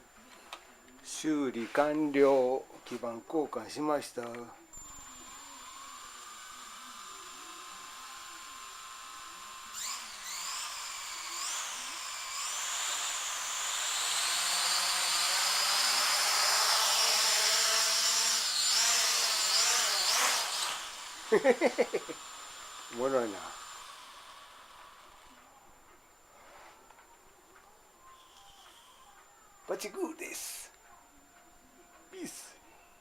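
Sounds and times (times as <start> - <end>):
quadcopter motors high whine: 4.8 - 25.4.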